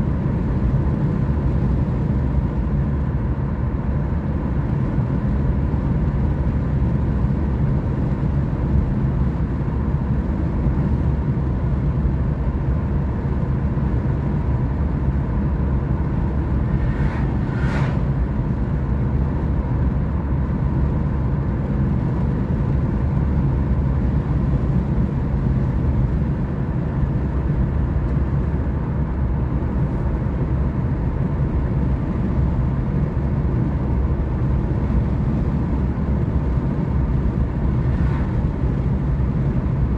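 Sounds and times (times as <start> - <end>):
car engine and tyre rumble: 0.0 - 39.9
brief whoosh: 16.2 - 19.1.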